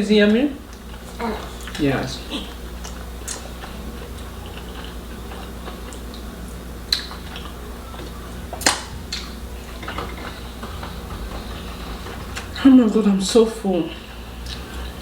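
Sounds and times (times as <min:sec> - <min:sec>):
low steady hum: 0:00.0 - 0:15.0
dishes clicking and tapping: 0:06.9 - 0:12.6.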